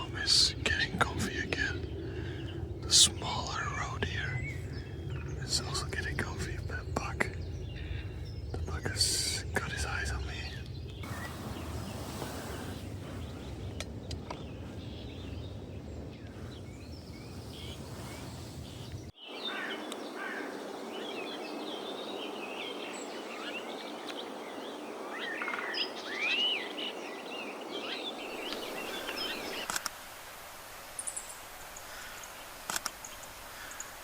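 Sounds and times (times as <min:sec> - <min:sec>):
low rumbling noise: 0:00.0 - 0:19.1
songbirds chirping and whistling: 0:00.0 - 0:29.7.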